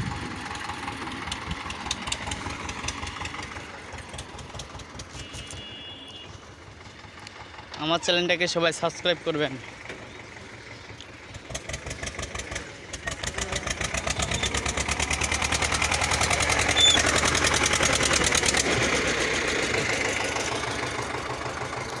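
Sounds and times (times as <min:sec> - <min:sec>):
tractor engine chugging: 0:00.0 - 0:22.0.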